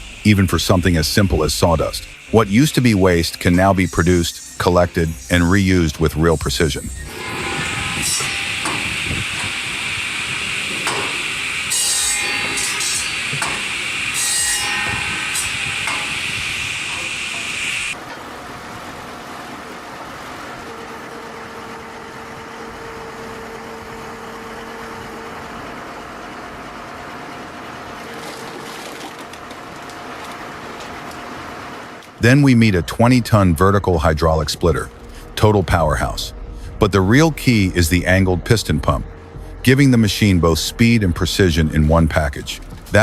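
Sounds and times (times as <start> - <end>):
wood grinding machine whine: 0.0 - 18.0
machine hum: 0.0 - 43.0.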